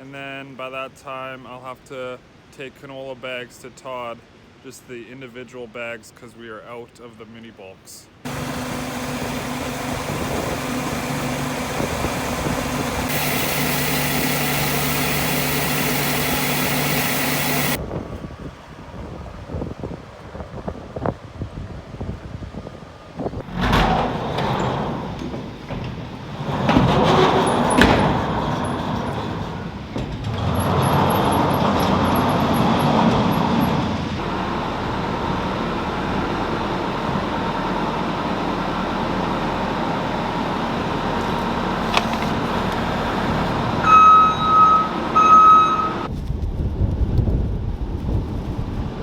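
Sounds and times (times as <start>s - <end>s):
engine running: 8.3s - 17.8s, 24.4s - 45.5s
short electronic beeps: 13.1s - 17.8s, 43.8s - 46.1s
wind on microphone: 17.8s - 23.5s, 46.1s - 49.0s.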